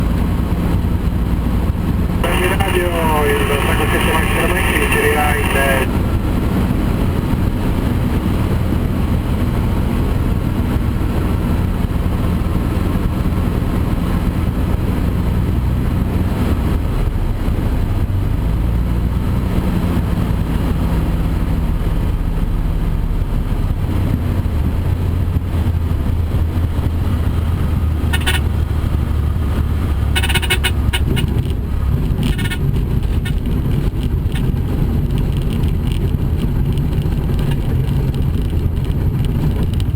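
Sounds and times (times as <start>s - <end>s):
propeller plane engine droning: 0.0s - 14.6s
short crackles: 2.2s - 5.9s.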